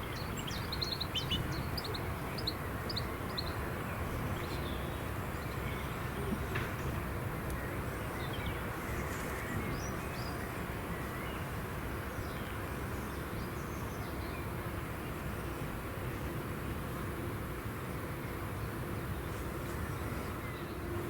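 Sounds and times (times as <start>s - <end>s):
small birds chirping: 0.0s - 3.6s.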